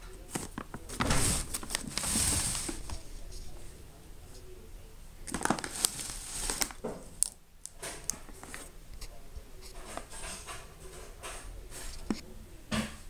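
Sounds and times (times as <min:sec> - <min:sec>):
packaging crinkling and rustling: 0:00.2 - 0:03.0, 0:05.3 - 0:08.7.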